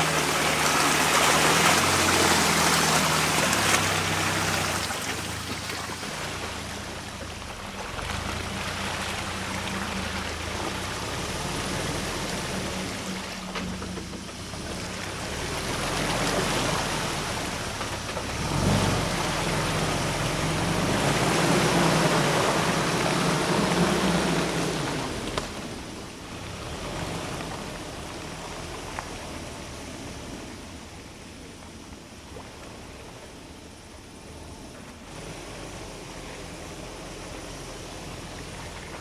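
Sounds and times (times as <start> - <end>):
broad rushing noise: 0.0 - 6.5
low engine hum: 0.0 - 39.0.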